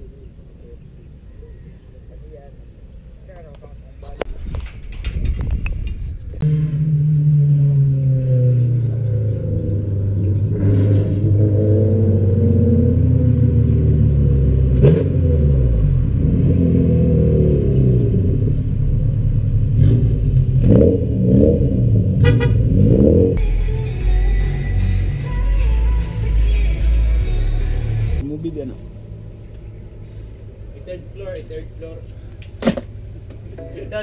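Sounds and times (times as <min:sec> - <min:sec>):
car engines idling: 0:00.0 - 0:04.3, 0:06.0 - 0:34.0
engine throttle blips and revs: 0:05.8 - 0:23.4.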